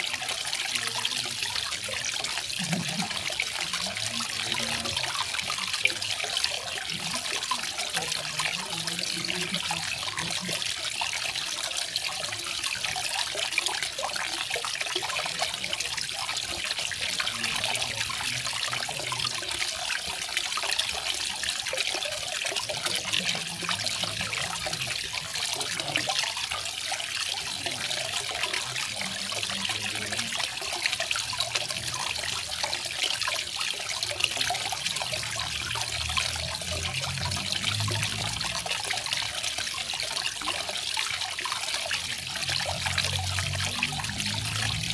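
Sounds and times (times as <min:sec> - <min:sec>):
water splashing into a pool: 0:00.0 - 0:44.9.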